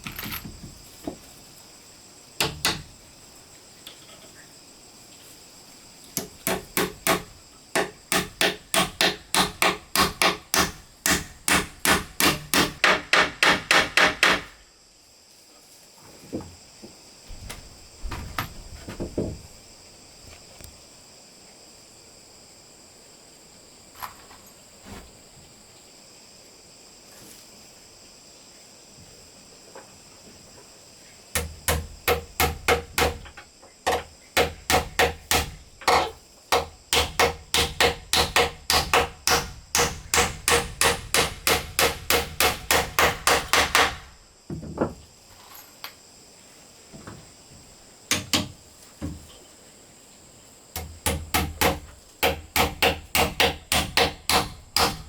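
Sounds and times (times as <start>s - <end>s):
high insect drone: 0.0s - 55.0s
hammer striking wood: 2.4s - 2.9s, 6.2s - 14.5s, 31.4s - 33.3s, 33.9s - 44.1s, 48.1s - 48.6s, 50.8s - 55.0s.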